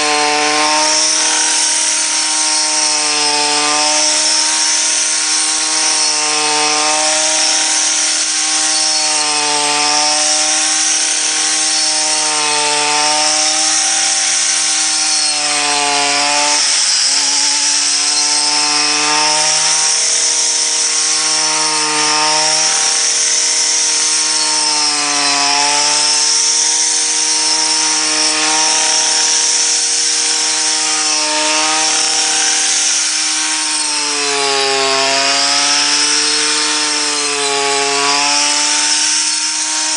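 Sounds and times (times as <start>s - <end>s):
small engine running fast: 0.0s - 39.9s.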